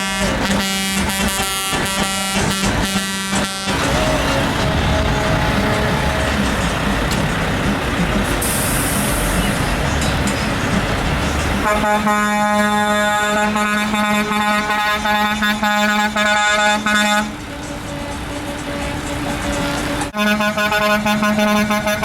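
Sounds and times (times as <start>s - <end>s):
quieter higher horn tone: 0.0s - 6.7s
truck air horn blast: 0.0s - 7.6s, 11.6s - 22.0s.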